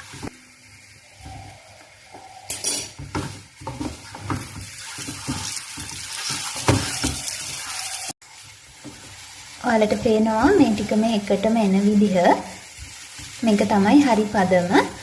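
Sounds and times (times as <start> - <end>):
butter sizzling: 0.0 - 15.0
spoon scraping a pan: 1.2 - 8.1.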